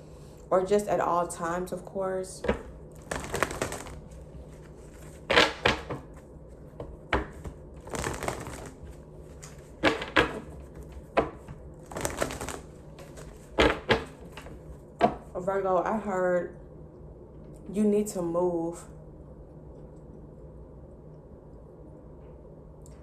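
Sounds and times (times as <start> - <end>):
steady low hum: 0.0 - 23.0
sharp taps of cards: 2.5 - 4.1, 7.2 - 9.0, 11.9 - 14.1
cards being shuffled: 2.5 - 6.2, 7.2 - 14.7.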